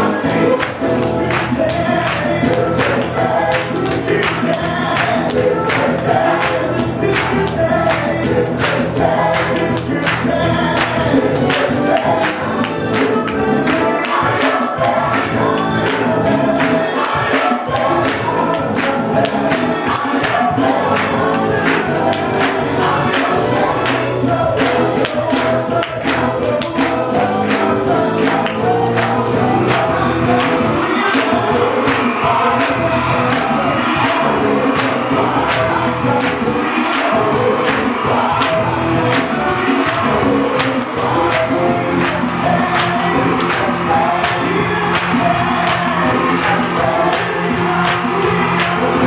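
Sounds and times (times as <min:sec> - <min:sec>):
gospel choir singing: 0:00.0 - 0:49.0
live church band: 0:00.0 - 0:49.0
percussion beat: 0:00.0 - 0:49.0.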